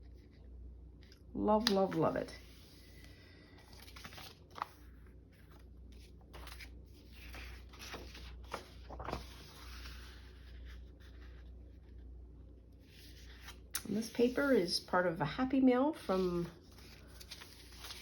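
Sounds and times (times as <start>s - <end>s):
paper rustling and sliding: 1.6s - 12.0s, 12.9s - 14.8s, 16.0s - 18.0s.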